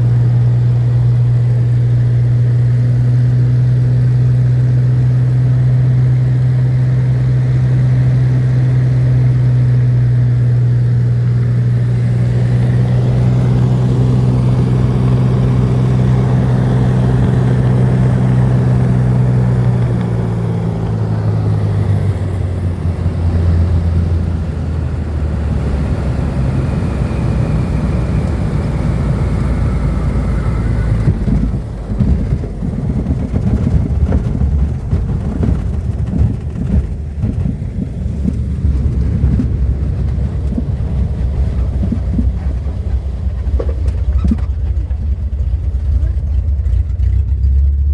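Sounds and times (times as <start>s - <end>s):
plane engine and propeller droning: 0.0s - 47.9s.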